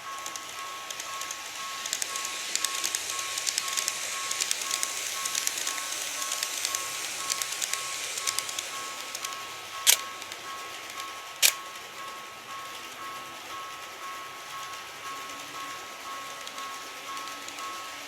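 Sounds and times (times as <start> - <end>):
level-crossing warning beeps: 0.0 - 18.0
model train wheels clicking: 0.0 - 18.0.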